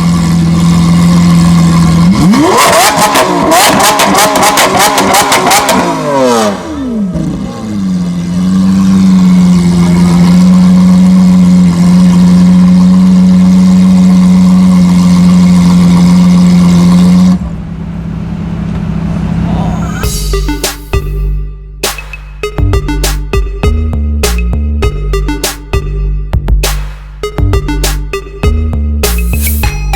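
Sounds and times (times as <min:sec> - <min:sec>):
car engine revving with crackles: 0:00.0 - 0:19.5.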